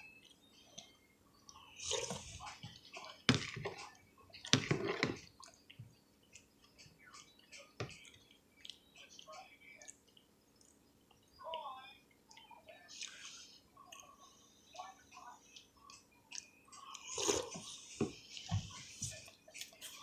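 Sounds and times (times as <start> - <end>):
wet chewing and slurping: 16.4 - 17.9.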